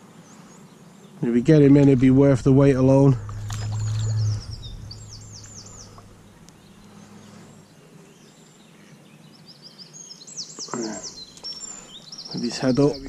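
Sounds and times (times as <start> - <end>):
songbird singing: 0.0 - 13.0
faint low hum: 1.2 - 7.8.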